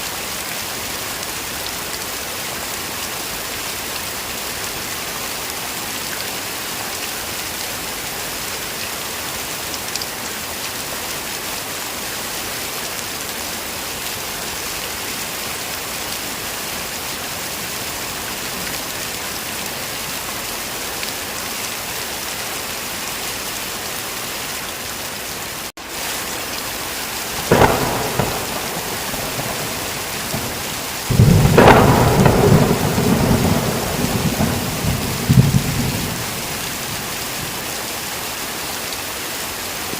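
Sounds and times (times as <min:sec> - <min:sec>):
heavy rain: 0:00.0 - 0:39.9
rolling thunder: 0:27.3 - 0:37.6
thunderclap: 0:27.3 - 0:37.6.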